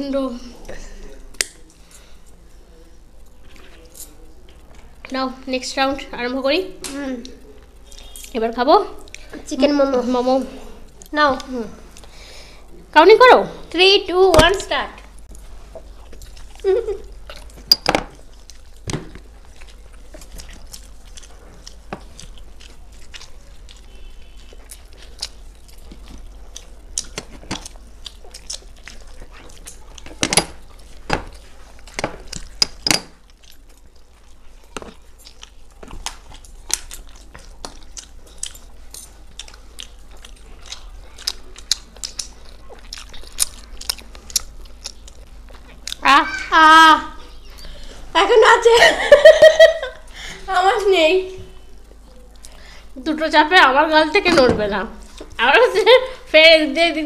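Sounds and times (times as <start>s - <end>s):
faint low hum: 0.0s - 57.0s
people chewing and biting food: 6.8s - 8.4s, 9.0s - 12.9s, 14.5s - 46.5s, 51.4s - 53.0s, 55.0s - 55.4s.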